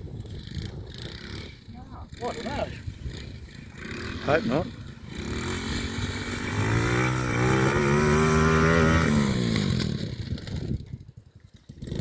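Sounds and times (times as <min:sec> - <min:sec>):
model quad bike motor revving: 0:00.0 - 0:12.0.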